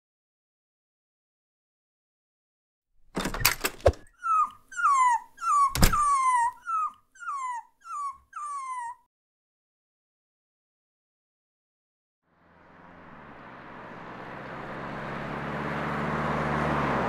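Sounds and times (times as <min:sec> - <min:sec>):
clattering with sharp knocks: 0:03.1 - 0:04.1
dog whimpering: 0:04.0 - 0:09.1.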